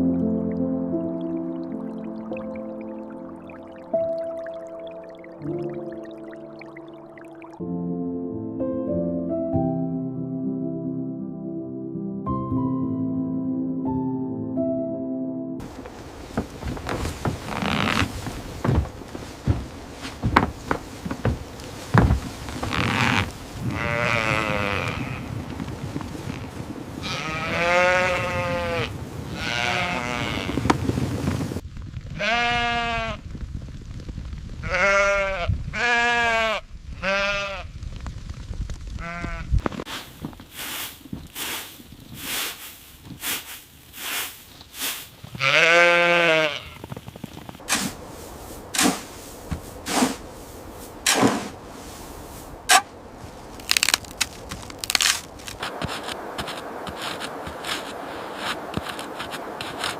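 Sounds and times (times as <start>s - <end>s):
animal bleating: 22.8s - 25.3s, 27.0s - 30.6s, 45.4s - 46.8s.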